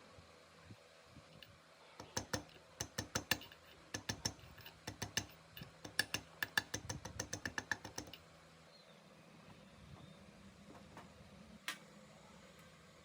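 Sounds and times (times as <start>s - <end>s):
sharp mechanical clicks: 1.4s - 8.2s.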